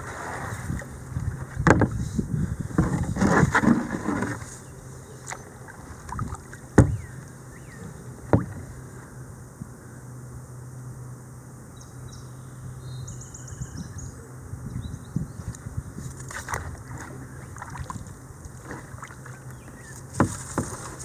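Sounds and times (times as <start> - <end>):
steady low hum: 0.0 - 21.0
paddle knocking against kayak: 1.3 - 2.1, 5.3 - 8.8, 16.1 - 21.0.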